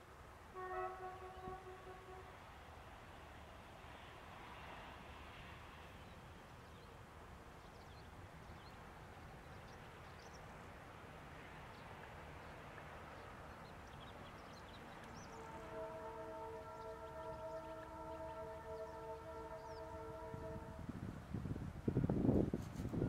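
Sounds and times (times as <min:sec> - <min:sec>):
distant train rumbling: 0:00.2 - 0:23.0.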